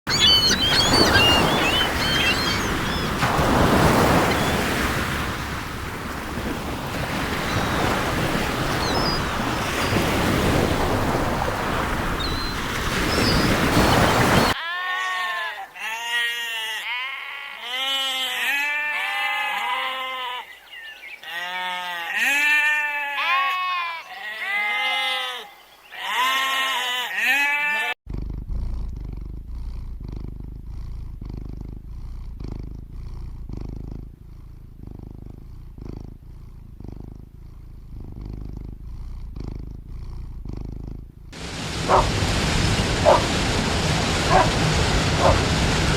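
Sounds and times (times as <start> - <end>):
faint bird calls: 0.1 - 5.4, 6.4 - 17.0, 17.6 - 27.9
ocean surf: 0.1 - 14.6, 41.4 - 45.9
sheep bleating: 14.6 - 20.5, 21.2 - 28.0
cat purring: 28.1 - 42.0.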